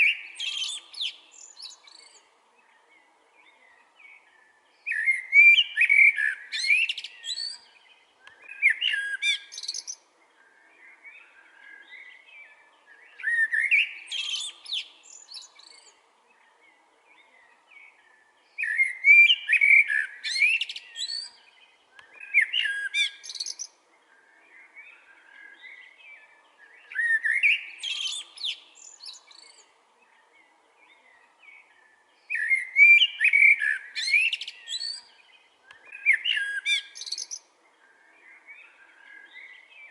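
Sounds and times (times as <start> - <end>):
blackbird singing: 0.0 - 39.9.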